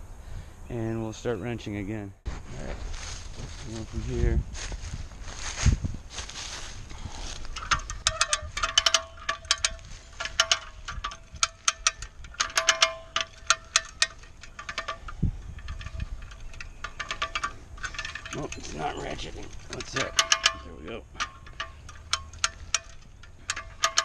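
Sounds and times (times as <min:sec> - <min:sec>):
cable puller ratcheting clicks: 0:07.4 - 0:24.0.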